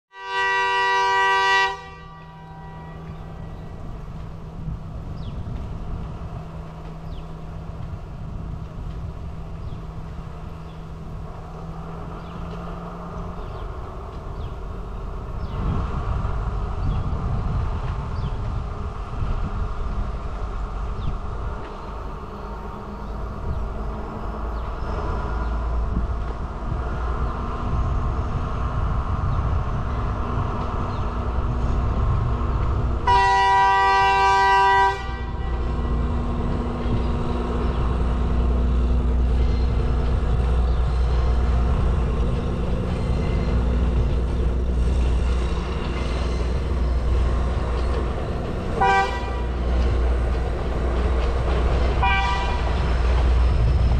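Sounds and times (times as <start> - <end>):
train horn: 0.1 - 3.6, 33.0 - 36.4, 48.7 - 49.9, 52.0 - 52.9
train rumbling: 0.1 - 53.9.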